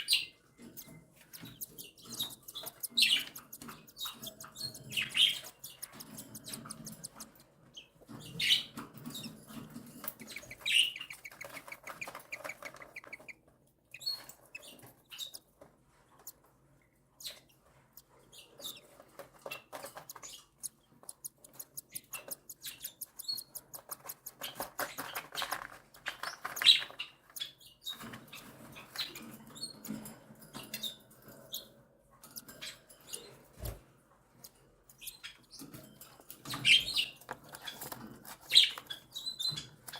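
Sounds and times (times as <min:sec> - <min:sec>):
sharp clicks: 0:00.8 - 0:07.5.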